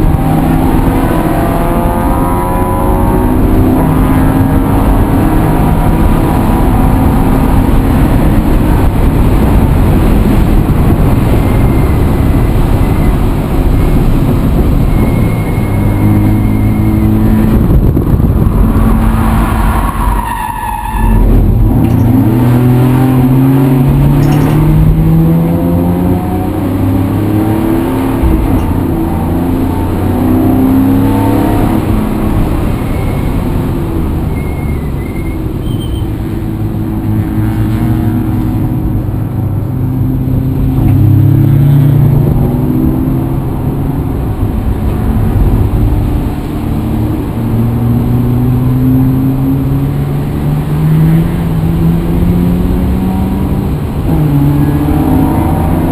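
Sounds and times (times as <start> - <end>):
vehicle engine revving: 0.0 - 20.1, 21.0 - 55.9
constant rushing noise: 3.2 - 30.3.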